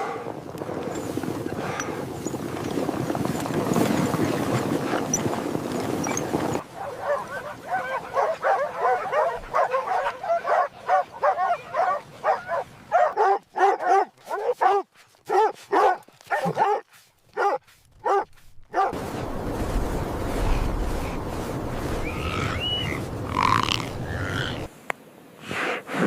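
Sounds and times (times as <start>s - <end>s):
dogs barking and yipping: 6.0s - 19.0s
steady rushing noise: 18.9s - 24.7s.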